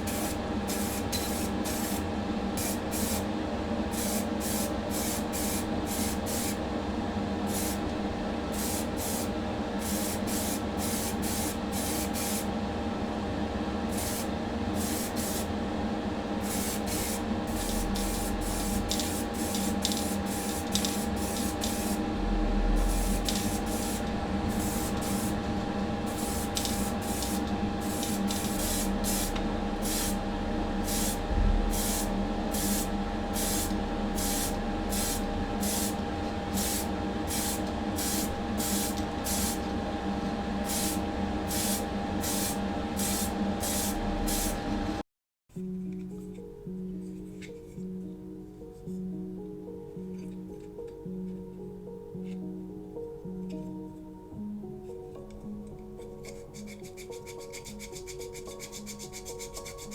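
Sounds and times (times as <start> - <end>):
steady motor hum: 0.0 - 45.0
spray paint hissing bursts: 13.9 - 15.5, 16.4 - 22.0, 22.8 - 25.4, 26.1 - 30.2, 30.8 - 39.6, 40.7 - 44.6.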